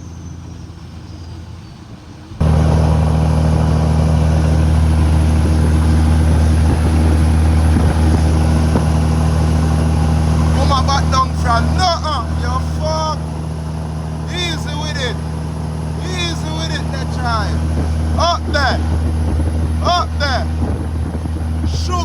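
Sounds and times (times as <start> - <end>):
diesel truck engine droning: 2.2 - 22.0.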